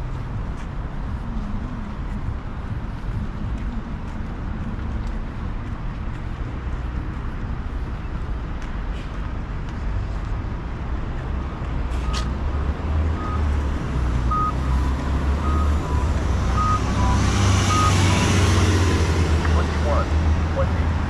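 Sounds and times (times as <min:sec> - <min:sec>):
street traffic rumble: 0:00.0 - 0:21.0
reversing alarm beeps: 0:12.0 - 0:13.6, 0:14.3 - 0:18.1
second lower beep: 0:14.3 - 0:18.7.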